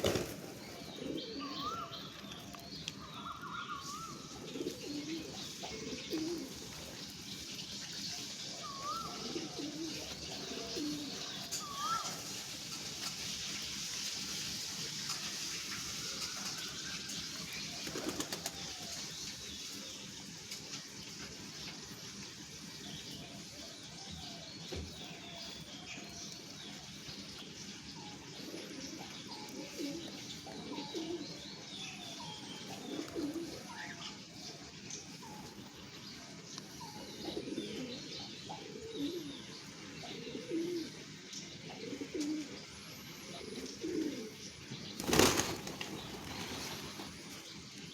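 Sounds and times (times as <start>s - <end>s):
wing flutters: 0.0s - 0.8s, 45.0s - 47.4s
low bird calls: 0.0s - 6.7s, 8.5s - 12.4s
birds chirping: 0.0s - 47.9s.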